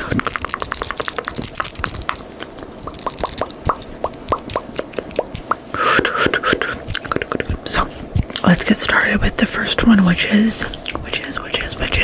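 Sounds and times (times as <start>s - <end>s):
hollow mouth pops: 0.0s - 8.4s
wet tongue and lip clicks: 0.0s - 8.9s, 10.1s - 12.0s.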